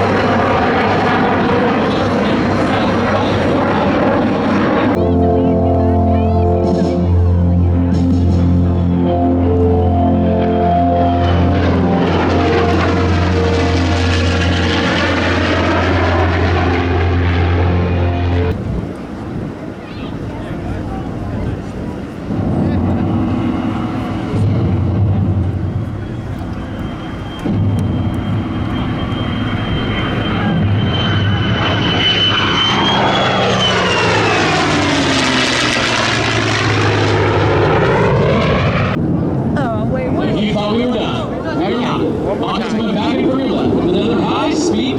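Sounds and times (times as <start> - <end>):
aircraft passing: 0.0 - 44.9
background music: 5.0 - 18.6.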